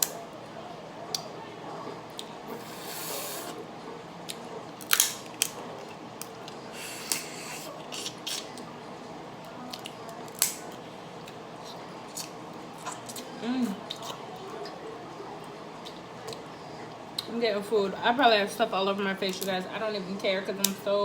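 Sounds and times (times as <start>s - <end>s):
seafood shells cracking: 4.8s - 6.4s, 9.8s - 10.8s.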